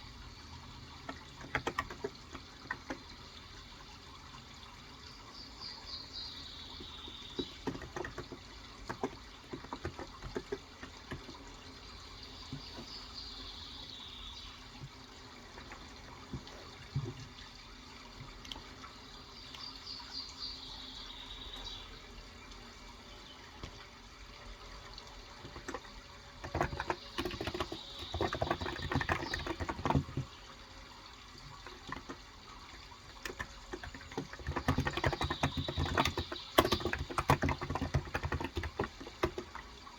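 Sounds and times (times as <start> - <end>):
running water: 0.0 - 39.9
keyboard typing: 1.1 - 3.0, 7.4 - 11.3, 26.4 - 30.3, 31.6 - 39.6.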